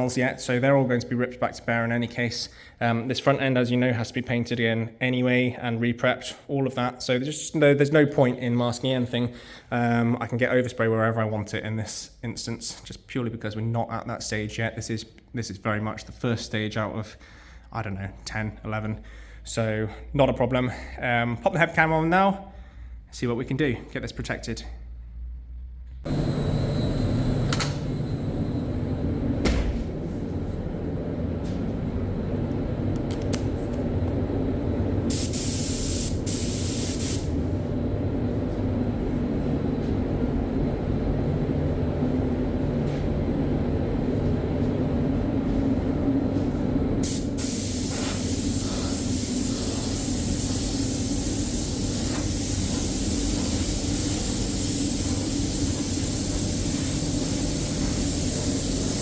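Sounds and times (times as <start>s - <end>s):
low machine drone: 26.1s - 35.1s, 37.3s - 47.0s
spray gun hissing: 35.1s - 37.4s, 47.0s - 59.0s.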